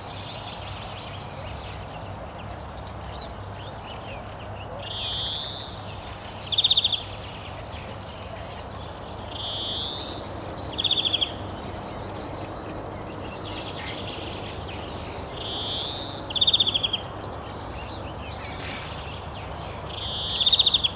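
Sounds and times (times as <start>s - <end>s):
steady outdoor hiss: 0.0s - 20.9s
bird trilling: 18.3s - 20.9s
faint bird chirps: 18.3s - 20.9s.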